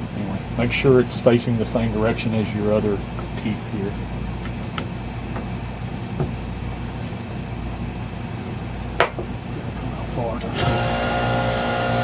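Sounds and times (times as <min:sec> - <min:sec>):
hydraulic pump motor humming: 0:09.4 - 0:12.0.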